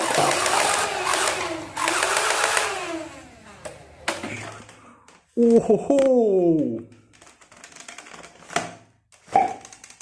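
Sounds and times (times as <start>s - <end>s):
toy gun rapid-fire rattle: 0.0s - 3.0s.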